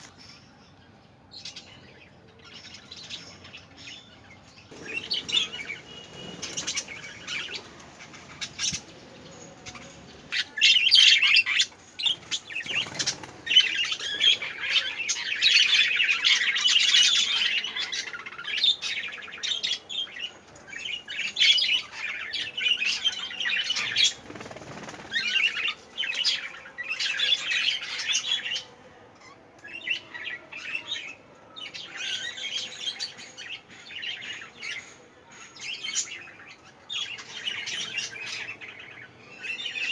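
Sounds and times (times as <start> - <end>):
budgerigars chirping: 4.7 - 18.9.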